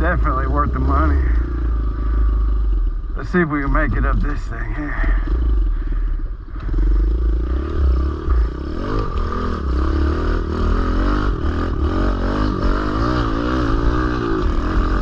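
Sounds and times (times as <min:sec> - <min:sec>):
small motorcycle engine revving: 0:05.0 - 0:15.0.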